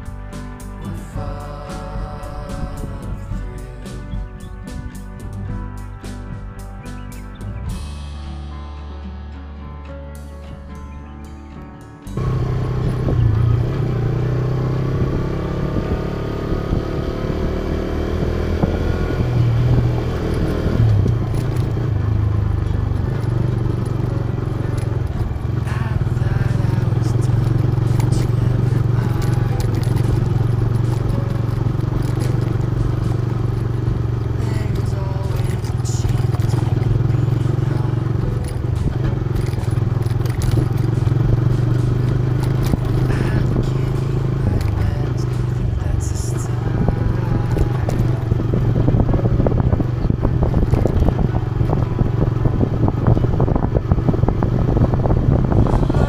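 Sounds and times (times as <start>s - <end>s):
motorcycle engine running: 0.0s - 8.6s, 12.1s - 56.0s
motorcycle rattles and clicks: 11.0s - 56.0s.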